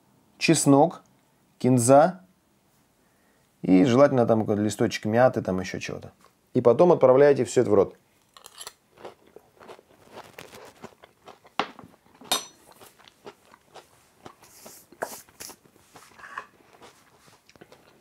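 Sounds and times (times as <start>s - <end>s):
person chewing crunchy food: 8.2s - 18.0s.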